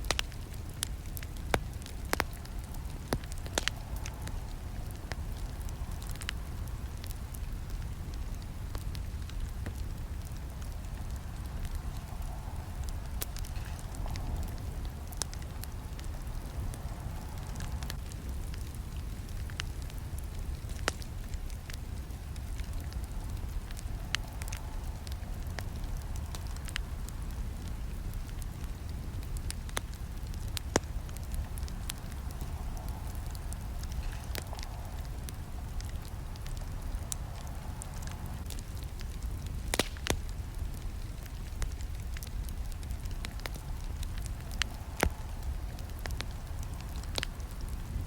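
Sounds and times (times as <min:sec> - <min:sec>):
burning wood crackling and popping: 0:00.0 - 0:48.0
campfire rumbling: 0:00.0 - 0:48.0.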